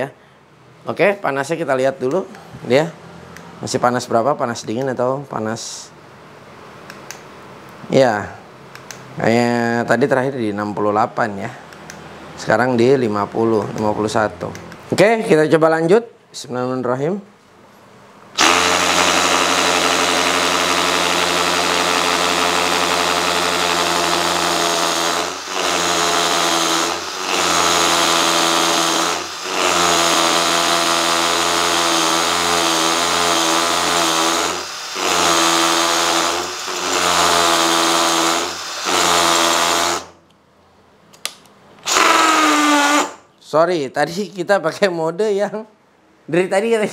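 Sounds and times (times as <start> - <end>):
hammer drill boring into concrete: 18.4 - 40.2, 41.8 - 43.2.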